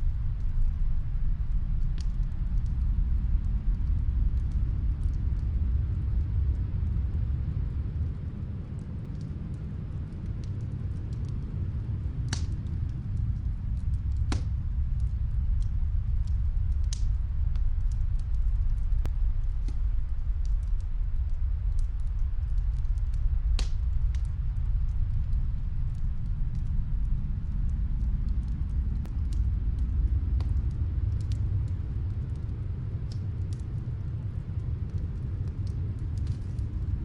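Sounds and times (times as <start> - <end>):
muffled snowstorm wind: 0.0 - 37.0
wood fire crackling pops: 9.0 - 37.0.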